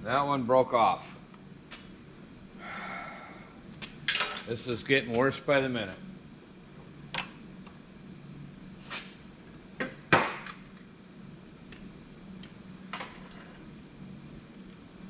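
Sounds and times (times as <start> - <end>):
faint steady hum: 0.0 - 15.0
metal hand tools knocking and clinking: 4.1 - 4.5.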